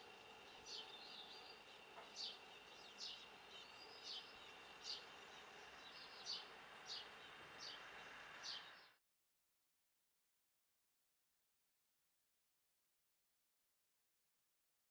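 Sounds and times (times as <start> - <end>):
small bird chirping: 0.0 - 9.0.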